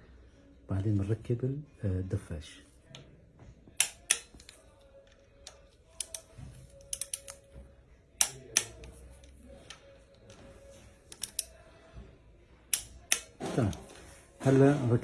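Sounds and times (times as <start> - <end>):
hand tools clicking on bolts: 5.5 - 7.4, 11.1 - 11.5, 12.7 - 13.3.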